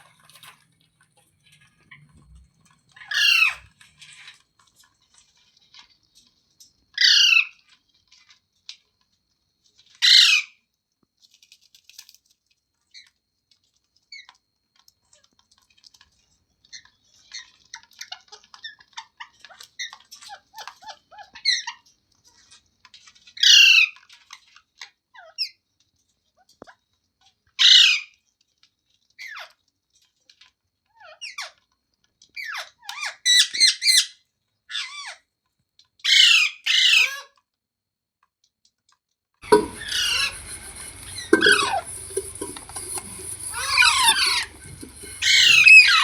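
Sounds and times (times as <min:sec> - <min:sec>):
parrot squawking: 0:03.0 - 0:03.7, 0:10.0 - 0:10.4, 0:39.4 - 0:46.0
parrot chattering: 0:39.4 - 0:46.0.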